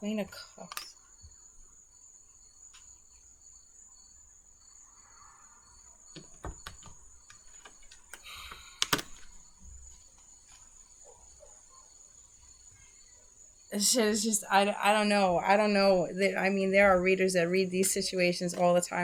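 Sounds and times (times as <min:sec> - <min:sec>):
cards slapping: 0:06.2 - 0:10.7
cards shuffling: 0:06.2 - 0:10.8.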